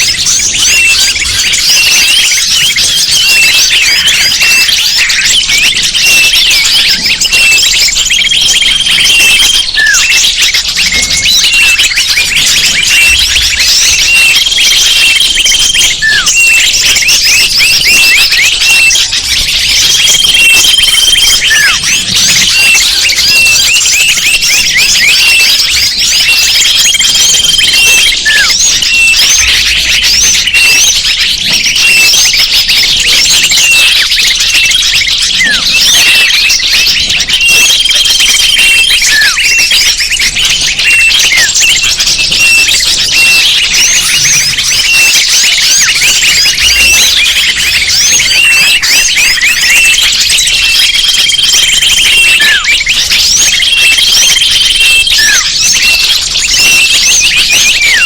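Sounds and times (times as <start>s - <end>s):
small birds chirping chorus: 0.0s - 58.0s
held high whistle: 28.2s - 29.8s.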